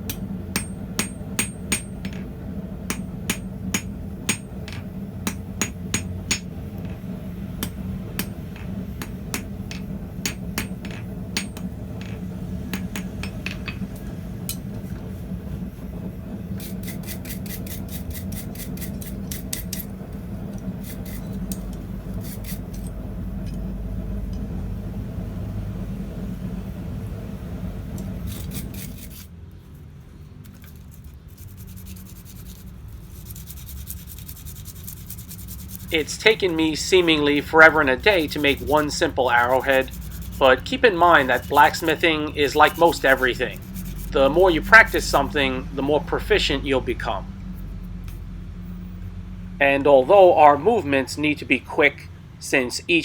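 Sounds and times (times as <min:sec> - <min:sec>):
hammer striking steel on anvil: 0:00.0 - 0:14.7
steady low hum: 0:00.0 - 0:30.3, 0:31.3 - 0:53.0.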